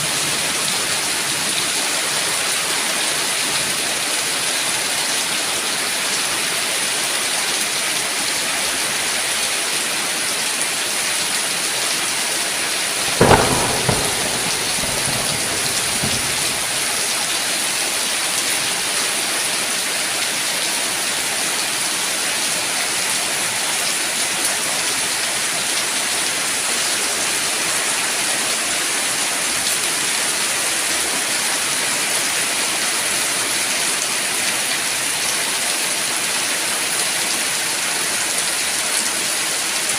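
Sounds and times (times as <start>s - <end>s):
heavy rain falling: 0.0s - 39.9s
thunderclap rumbling: 13.0s - 17.3s.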